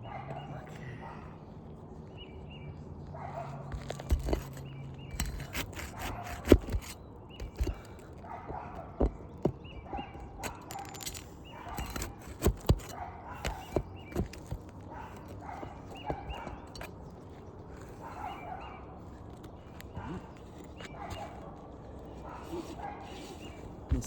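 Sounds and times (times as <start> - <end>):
hand tool knocking and scraping: 3.7 - 18.4.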